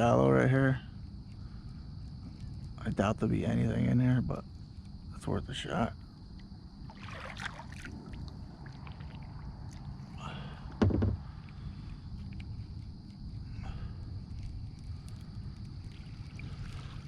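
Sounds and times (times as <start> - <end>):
low rumble of water and wind: 0.0 - 17.0
dull knock against hull: 10.8 - 11.2.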